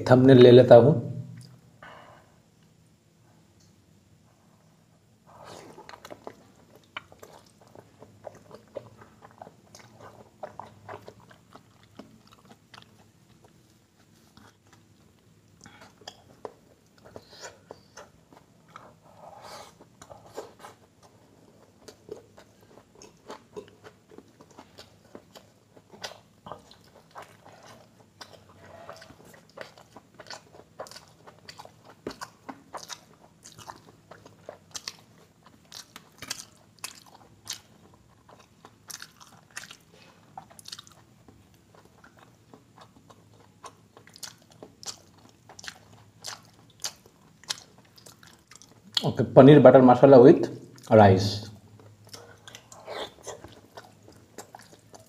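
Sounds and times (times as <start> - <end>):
man chewing food: 5.2 - 49.0, 50.6 - 50.9, 51.6 - 55.0
wet smacking and chewing clicks: 21.8 - 49.1, 51.8 - 55.0.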